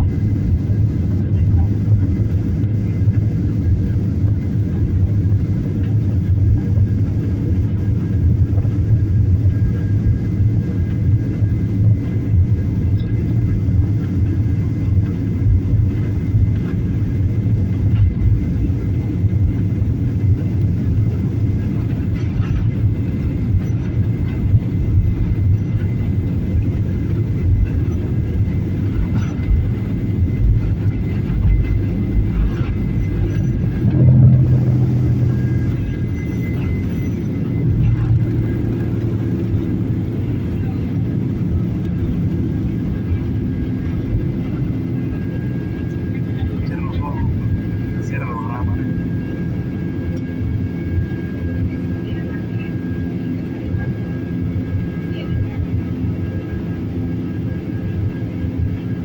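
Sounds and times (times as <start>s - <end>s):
airliner engines rumbling: 0.0s - 59.0s
faint thin whine: 0.0s - 59.0s.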